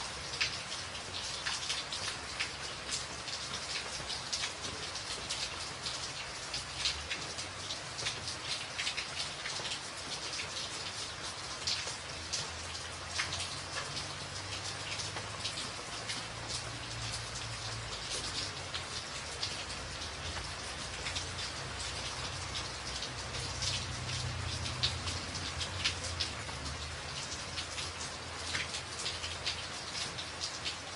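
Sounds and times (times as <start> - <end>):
rain on a tin roof: 0.0 - 30.9.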